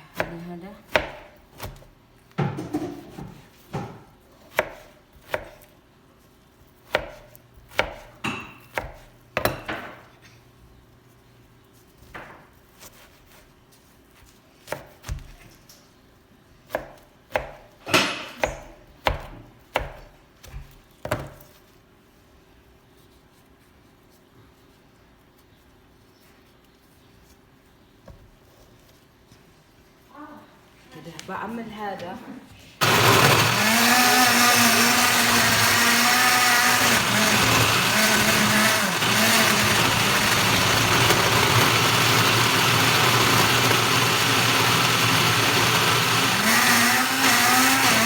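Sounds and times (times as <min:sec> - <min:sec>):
knife chopping on cutting board: 0:00.2 - 0:05.7, 0:06.8 - 0:10.0, 0:16.7 - 0:21.5.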